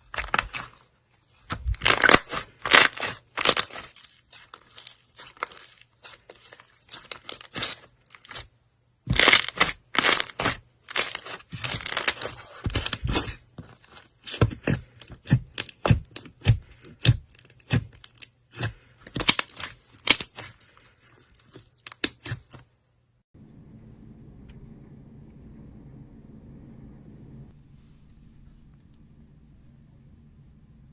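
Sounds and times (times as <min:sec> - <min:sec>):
slime crackling and popping: 0:01.4 - 0:08.5, 0:09.1 - 0:13.4
faint low hum: 0:23.0 - 0:30.9.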